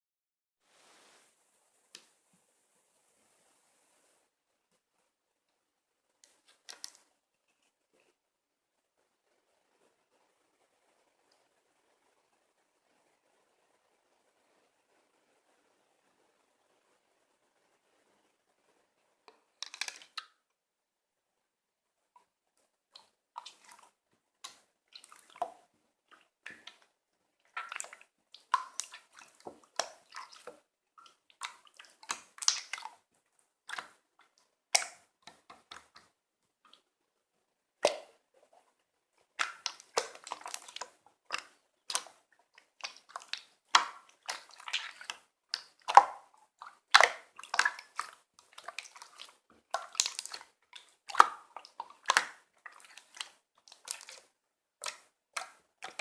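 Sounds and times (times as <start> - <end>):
slime squished by hand: 23.0 - 33.0, 39.3 - 56.0.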